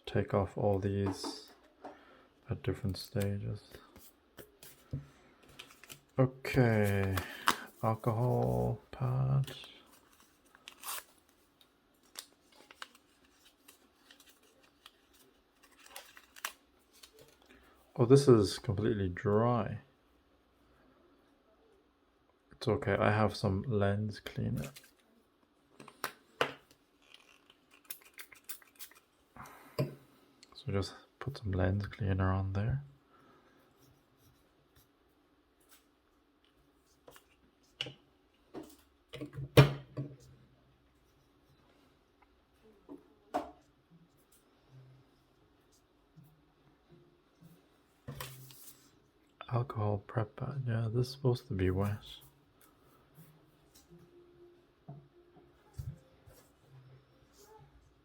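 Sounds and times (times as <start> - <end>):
faint crinkles and clicks: 9.4 - 17.7, 24.6 - 29.2
packet tearing open: 9.6 - 11.3, 12.0 - 17.4, 27.0 - 29.1.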